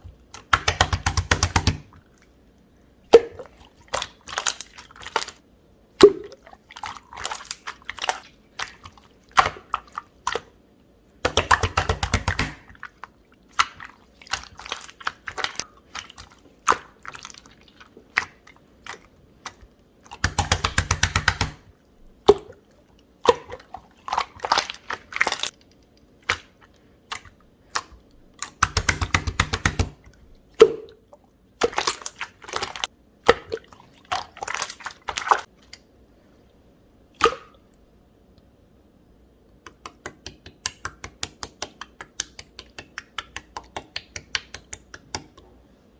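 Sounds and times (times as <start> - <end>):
rapid slime clicks: 0.3 - 1.9, 11.2 - 12.6, 20.2 - 21.6, 27.1 - 30.0, 39.6 - 45.4.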